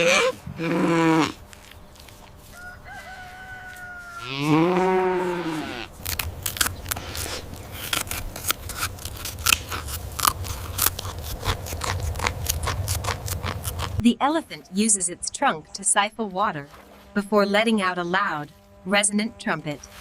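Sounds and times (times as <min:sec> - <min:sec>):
cow mooing: 0:00.0 - 0:01.4, 0:03.6 - 0:05.9
thin held animal call: 0:02.5 - 0:05.9
sharp clicks and crunches: 0:06.0 - 0:14.0.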